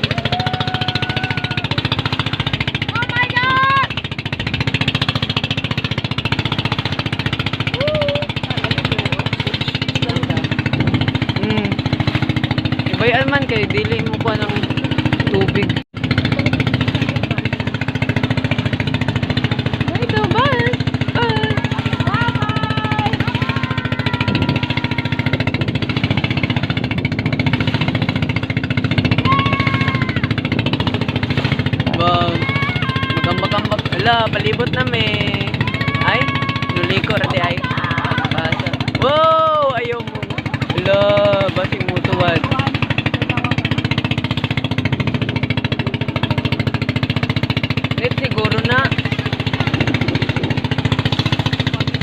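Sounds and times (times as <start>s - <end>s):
motorboat engine running: 0.0s - 52.0s
person calling out: 11.4s - 11.9s, 20.2s - 25.6s, 29.2s - 30.3s, 31.9s - 34.1s, 35.1s - 39.8s.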